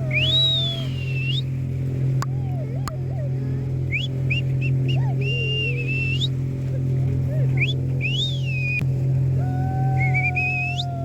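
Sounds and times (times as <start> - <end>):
boat engine droning: 0.0 - 11.0
people whistling: 0.1 - 1.5, 3.9 - 6.4, 7.6 - 8.8, 10.0 - 10.9.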